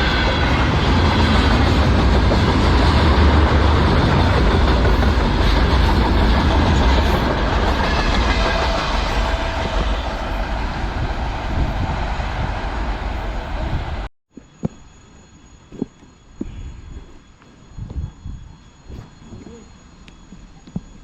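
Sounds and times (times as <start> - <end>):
freight train wagons rumbling: 0.0 - 14.1.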